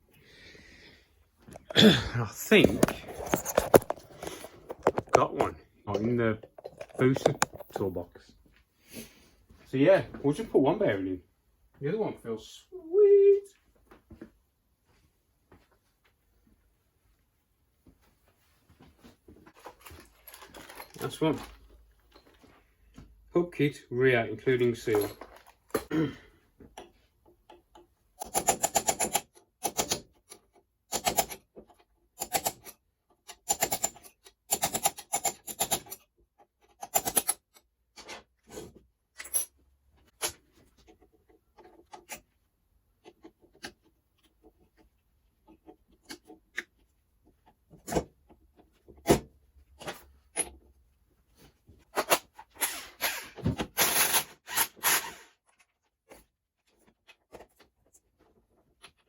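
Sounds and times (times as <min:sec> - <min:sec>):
hands rubbing and rustling parts: 0:02.4 - 0:08.7, 0:35.8 - 0:52.6, 0:55.4 - 0:59.0.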